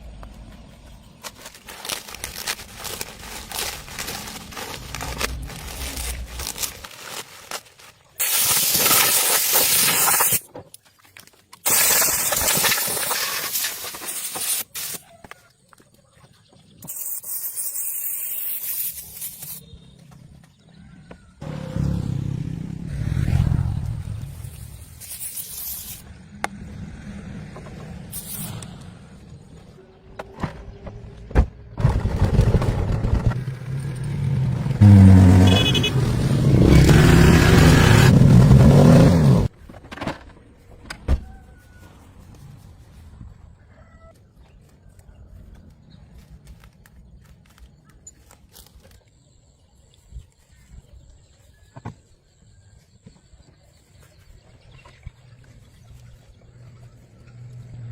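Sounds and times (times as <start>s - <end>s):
car engine running: 32.9s - 39.5s.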